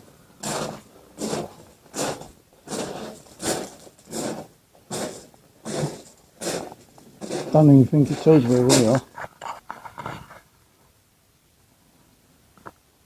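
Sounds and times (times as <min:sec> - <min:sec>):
footsteps on stony path: 0:00.4 - 0:10.0.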